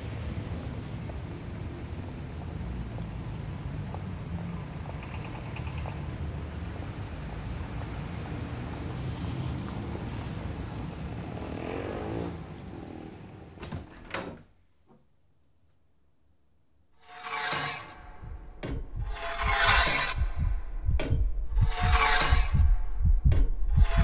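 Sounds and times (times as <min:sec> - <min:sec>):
wooden door creaking: 0:13.6 - 0:14.6
low rumbling ambience: 0:17.0 - 0:24.0.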